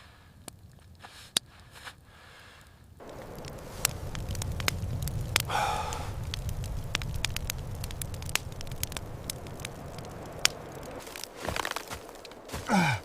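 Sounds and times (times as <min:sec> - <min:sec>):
wood fire crackling: 0:00.3 - 0:01.7, 0:02.6 - 0:13.0
low rumble: 0:03.0 - 0:11.3
sharp pops: 0:03.0 - 0:12.8.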